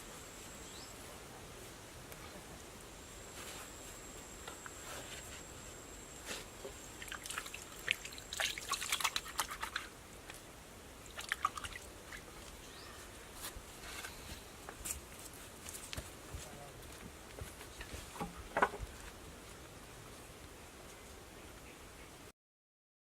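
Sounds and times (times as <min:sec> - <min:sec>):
water dripping and trickling: 0:06.8 - 0:09.9, 0:11.0 - 0:12.6.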